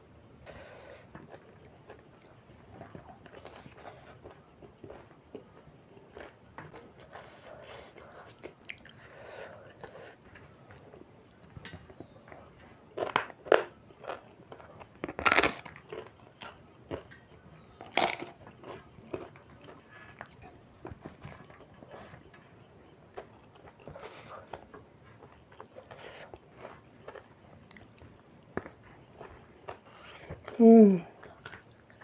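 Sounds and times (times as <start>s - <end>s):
soft chewing and mouth sounds: 0.4s - 32.0s
loud crunchy bites: 17.9s - 18.3s.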